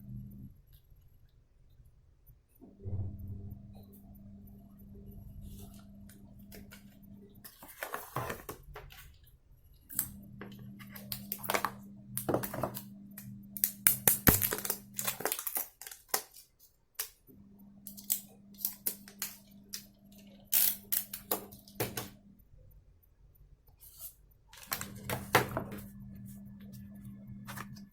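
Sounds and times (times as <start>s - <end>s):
low steady hum: 0.0s - 15.6s, 17.2s - 27.9s
plastic and paper crinkling: 7.5s - 9.1s, 14.2s - 16.7s, 24.6s - 25.7s.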